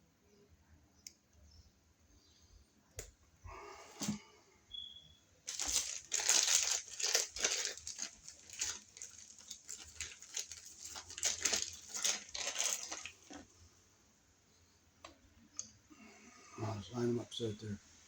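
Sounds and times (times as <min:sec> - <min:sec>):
electrical wires scraping and crinkling: 0:05.5 - 0:13.5.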